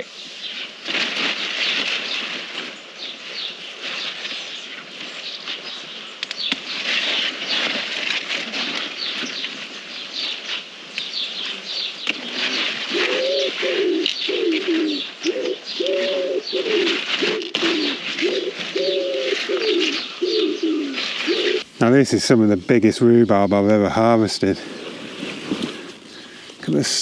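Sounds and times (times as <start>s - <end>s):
bird giving low calls: 11.3s - 22.6s.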